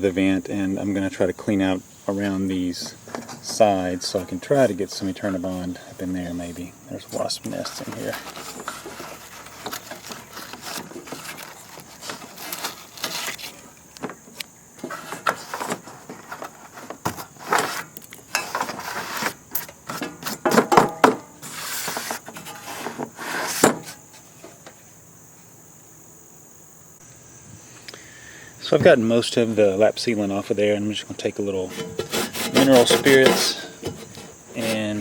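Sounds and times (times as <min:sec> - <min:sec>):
chisel scraping and tapping: 0:31.7 - 0:34.8.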